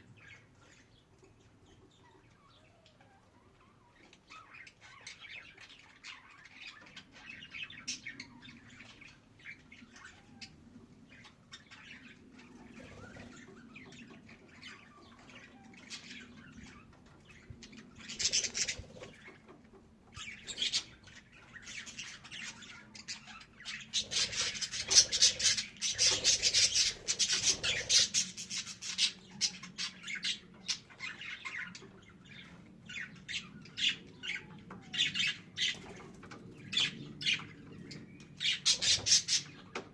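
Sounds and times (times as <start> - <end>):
budgerigar chirping and chattering: 20.2 - 31.8.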